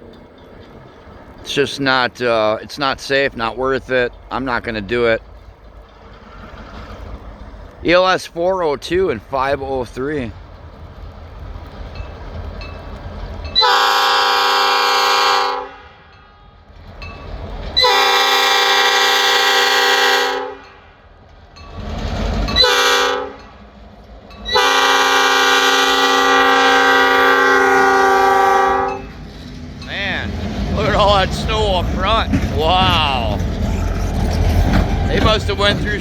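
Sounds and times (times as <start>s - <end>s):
low train rumble: 0.0s - 36.0s
locomotive air horn blasts: 13.6s - 16.6s, 17.8s - 21.0s, 22.5s - 23.6s, 24.5s - 29.1s.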